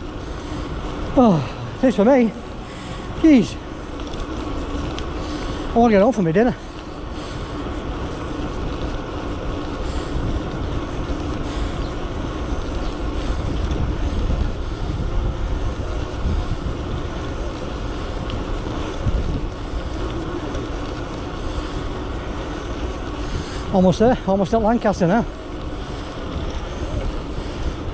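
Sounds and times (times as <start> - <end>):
road rumble: 0.0 - 27.9
wind buffeting microphone: 0.0 - 27.9.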